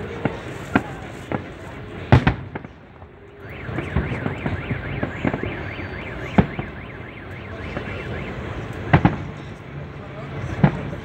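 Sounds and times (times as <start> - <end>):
fireworks bursting: 0.0 - 11.0
car alarm warbling: 3.4 - 9.3.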